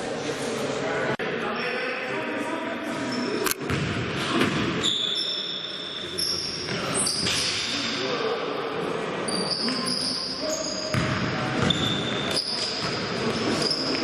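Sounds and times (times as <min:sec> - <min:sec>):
players' voices: 0:00.0 - 0:14.0
sneakers squeaking on court: 0:04.8 - 0:07.7, 0:09.3 - 0:14.0.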